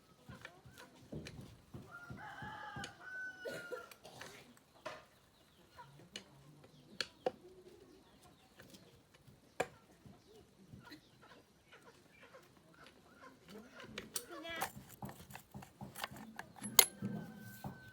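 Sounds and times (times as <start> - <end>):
faint chicken clucking: 0.0 - 14.6, 16.0 - 17.9
sharp clicks and taps: 14.6 - 17.9.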